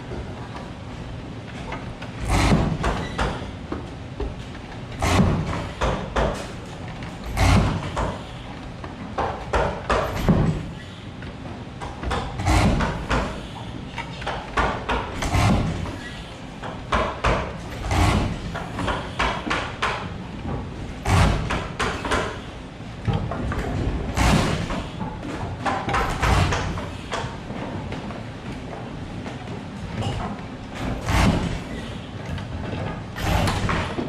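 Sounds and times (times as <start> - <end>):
knocks and thuds: 21.0 - 22.3, 23.1 - 24.9, 30.8 - 31.7.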